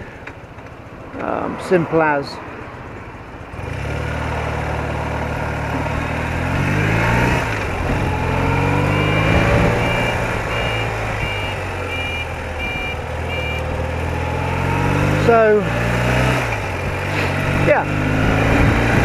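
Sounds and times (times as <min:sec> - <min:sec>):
motorcycle engine running: 0:03.4 - 0:19.0
short high beeps: 0:08.1 - 0:13.7
wind noise: 0:16.3 - 0:19.0.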